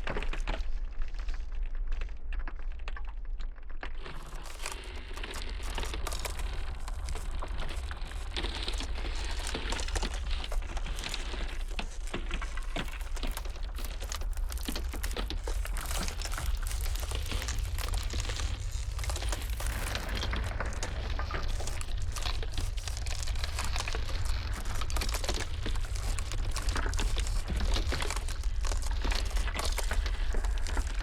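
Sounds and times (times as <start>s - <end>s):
ice crackling and popping: 0.0s - 31.0s
low rumble: 12.6s - 31.0s.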